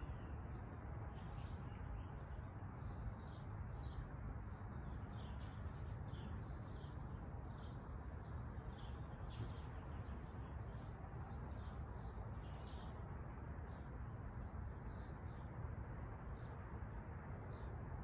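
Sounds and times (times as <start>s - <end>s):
small birds chirping: 1.2s - 14.0s.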